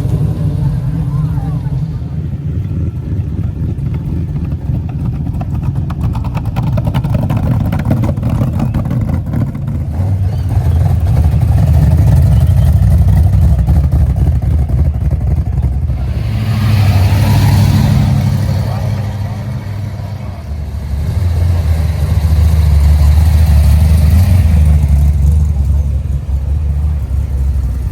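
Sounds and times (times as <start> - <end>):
car engine running: 0.0 - 27.9.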